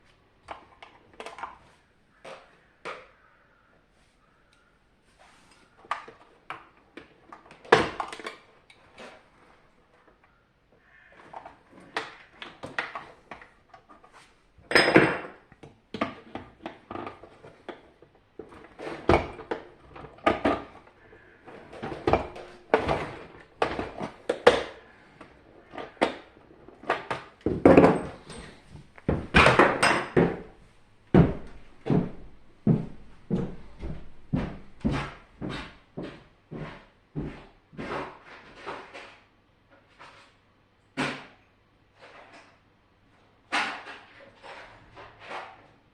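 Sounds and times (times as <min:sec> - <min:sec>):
parts knocking and clicking: 0:14.7 - 0:32.4.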